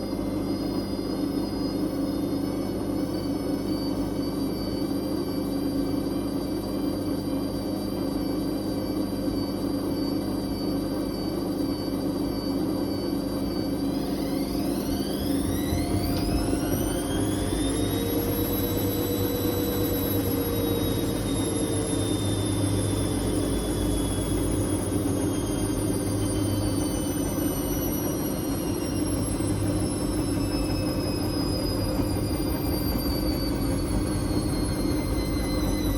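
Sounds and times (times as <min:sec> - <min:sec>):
washing machine drum spinning: 0:00.0 - 0:35.9.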